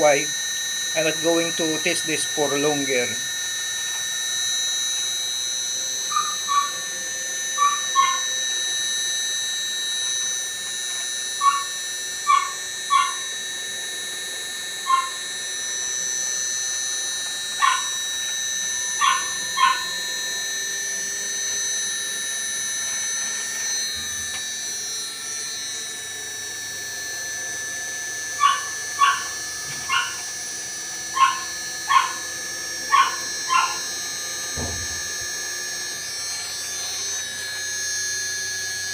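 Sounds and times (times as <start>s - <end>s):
air conditioner hum and whine: 0.0s - 4.6s
dog barking in short yaps: 7.6s - 8.2s, 28.4s - 29.3s, 29.9s - 30.2s, 31.2s - 32.2s, 32.9s - 33.8s.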